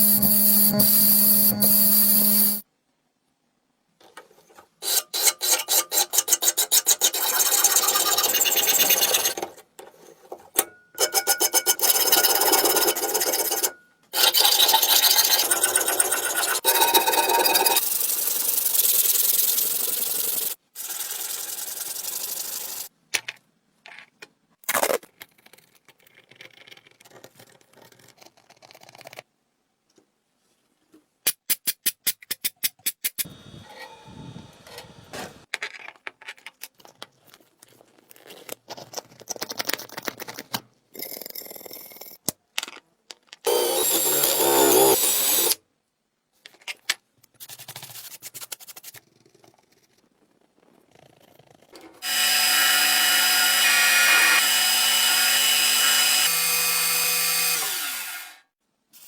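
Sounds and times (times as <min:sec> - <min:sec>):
power tool grinding metal: 0:00.0 - 0:02.6, 0:08.0 - 0:09.4, 0:43.5 - 0:45.6, 0:52.0 - 0:58.4.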